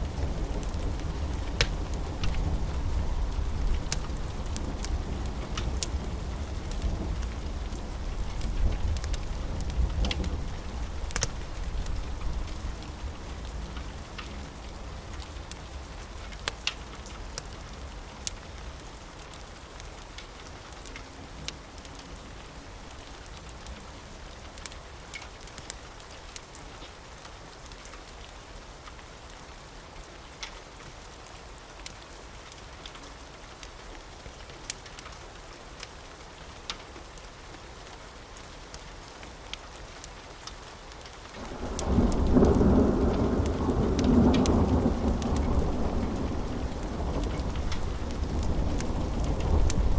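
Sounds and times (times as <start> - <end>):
wood fire crackling: 0.0 - 29.5, 30.2 - 49.9
steady rain falling: 0.0 - 49.9
low thunder rumble: 41.4 - 49.9.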